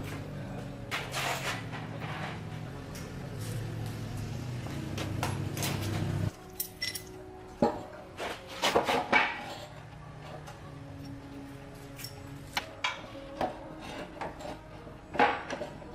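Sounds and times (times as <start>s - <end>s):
metal tools clinking: 5.6s - 7.9s, 11.9s - 13.0s.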